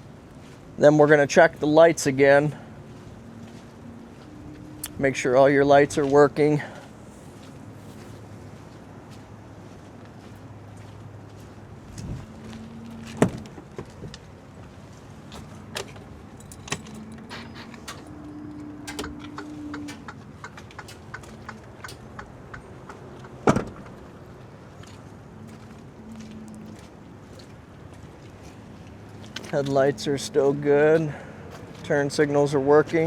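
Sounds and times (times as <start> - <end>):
handling clicks and knocks: 15.3 - 24.2.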